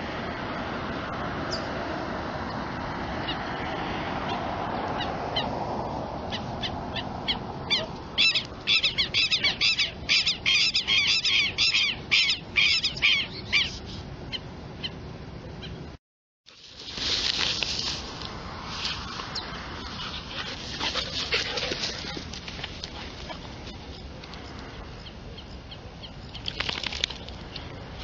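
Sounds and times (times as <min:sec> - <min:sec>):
birds calling: 0:04.3 - 0:15.0, 0:19.0 - 0:27.8
harsh rapid bird calls: 0:06.3 - 0:15.0.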